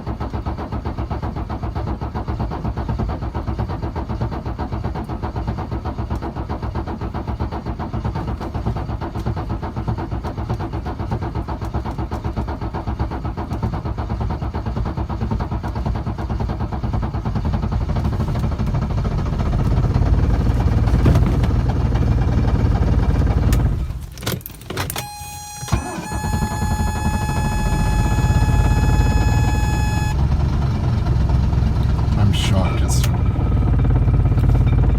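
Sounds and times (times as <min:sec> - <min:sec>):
diesel engine cold-starting: 0:14.5 - 0:34.9
steady electronic tones: 0:25.0 - 0:30.2.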